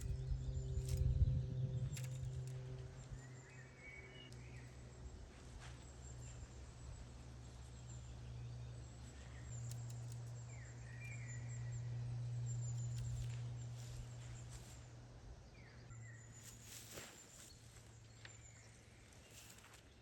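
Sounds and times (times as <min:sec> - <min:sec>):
steady low hum: 0:00.0 - 0:20.0
bird chirps: 0:05.6 - 0:14.8.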